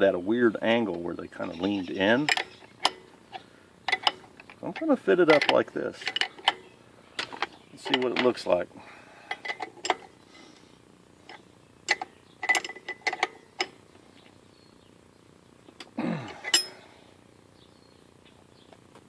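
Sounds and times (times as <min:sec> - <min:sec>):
metal hardware clicking and clinking: 0:00.7 - 0:08.6, 0:09.3 - 0:10.2, 0:11.3 - 0:13.8, 0:15.7 - 0:16.8.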